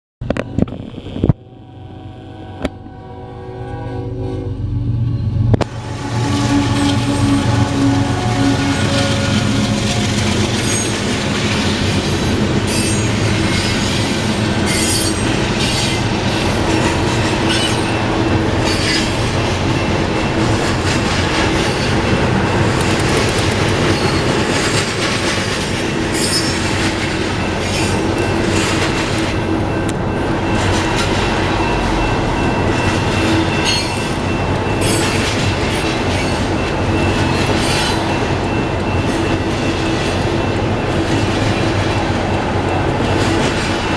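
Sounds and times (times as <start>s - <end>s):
freight train wheels rumbling: 3.8s - 43.9s
train clanks: 5.2s - 43.9s
wheel squeals: 21.4s - 24.9s, 26.1s - 40.5s.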